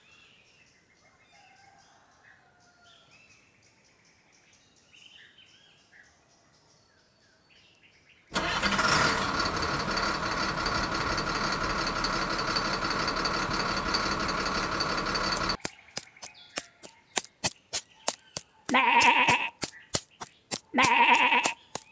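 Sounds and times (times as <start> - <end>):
small motor whining: 8.4 - 15.6.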